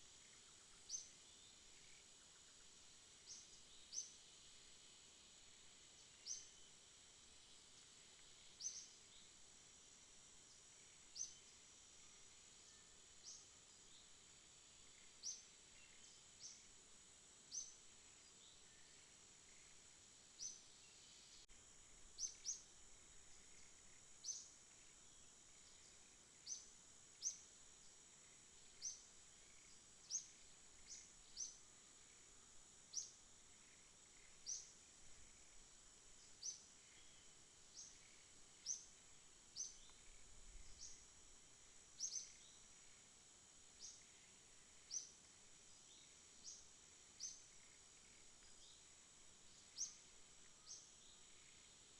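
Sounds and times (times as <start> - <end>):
insect chirps: 0.0 - 51.9
high-pitched insect drone: 20.4 - 43.1.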